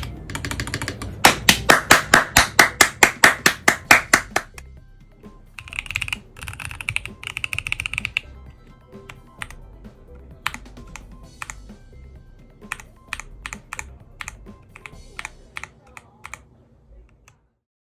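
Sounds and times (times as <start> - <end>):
mechanical keyboard keystrokes: 0.0 - 1.2, 5.6 - 8.2, 10.4 - 11.6, 12.7 - 16.4.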